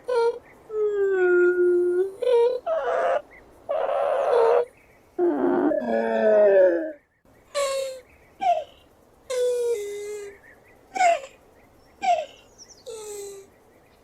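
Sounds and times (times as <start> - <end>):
tortoise whining moans: 0.0 - 7.0, 7.6 - 10.3
breathy hisses: 12.9 - 13.5.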